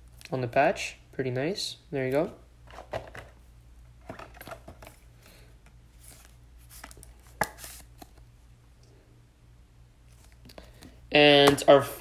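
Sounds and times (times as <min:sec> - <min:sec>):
faint steady low hum: 0:00.0 - 0:12.0
trading cards being handled: 0:04.0 - 0:08.3.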